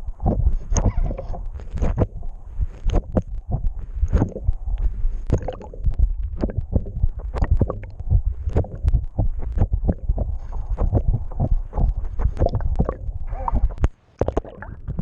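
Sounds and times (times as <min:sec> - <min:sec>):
low rumble: 0:00.0 - 0:15.0
water rushing underwater: 0:00.0 - 0:15.0
knocks and thumps: 0:02.8 - 0:04.4, 0:05.3 - 0:15.0.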